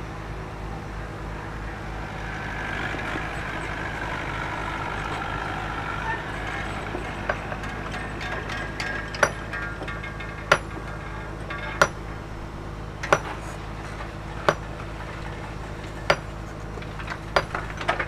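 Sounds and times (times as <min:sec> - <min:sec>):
low engine hum: 0:00.0 - 0:18.0
ringing metallic clinks: 0:06.8 - 0:12.3.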